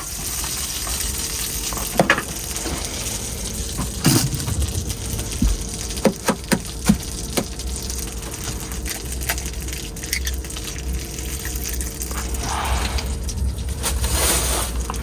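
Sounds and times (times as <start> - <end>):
steady low hum: 2.3 - 15.0
liquid being poured: 2.4 - 8.9.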